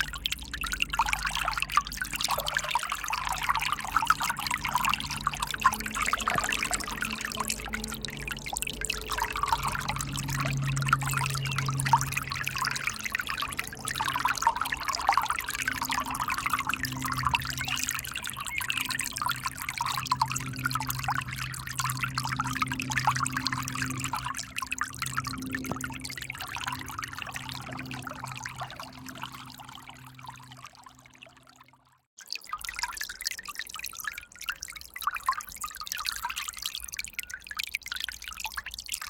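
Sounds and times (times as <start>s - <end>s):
low steady hum: 0.0s - 31.8s
river water splashing: 0.9s - 31.2s.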